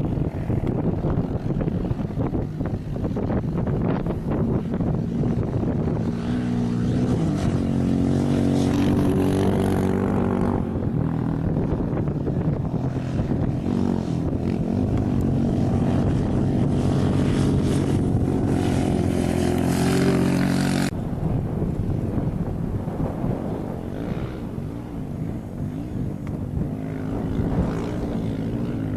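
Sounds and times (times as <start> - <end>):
rally vehicle engine running hard: 0.0 - 28.9.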